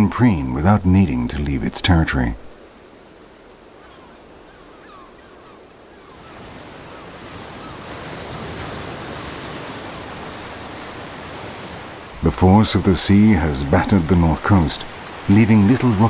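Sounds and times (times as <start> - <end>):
sea surf washing: 0.0 - 16.0
faint chirping bird calls: 2.7 - 8.1.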